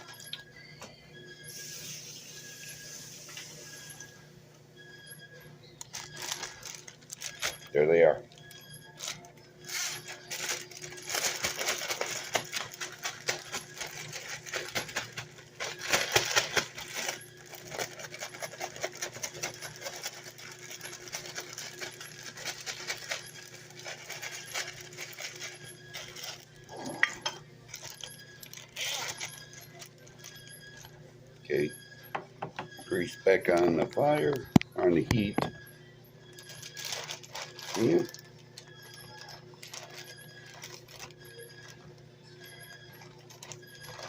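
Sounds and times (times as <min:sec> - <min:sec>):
objects rattling and clinking: 0:05.9 - 0:30.9, 0:36.4 - 0:41.8.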